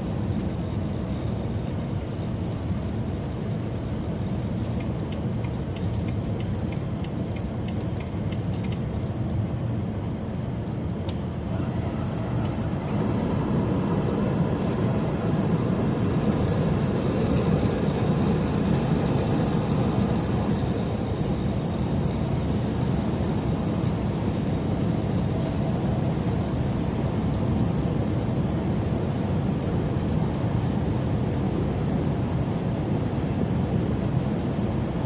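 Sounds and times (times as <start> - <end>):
truck engine drone: 11.2 - 34.9.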